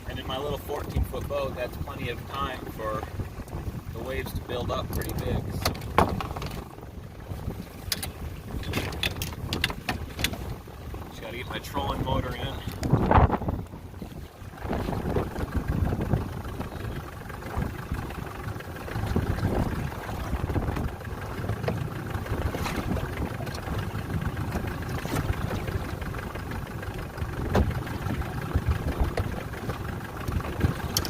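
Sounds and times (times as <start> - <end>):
outboard motor idling: 0.0 - 31.0
waves: 0.0 - 31.0
wind: 0.0 - 31.0
knocks and clunks of gear: 4.9 - 6.7, 7.8 - 10.5, 27.5 - 27.8, 30.3 - 31.0.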